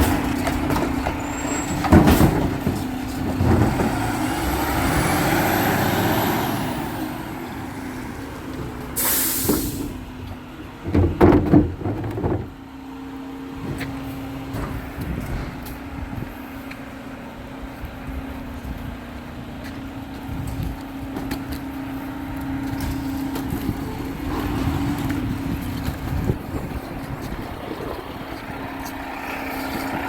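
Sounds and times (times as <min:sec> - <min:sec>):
metal bangs and clanks: 0:00.0 - 0:04.2
garbage truck running: 0:00.0 - 0:30.0
air brake hiss: 0:09.0 - 0:10.0.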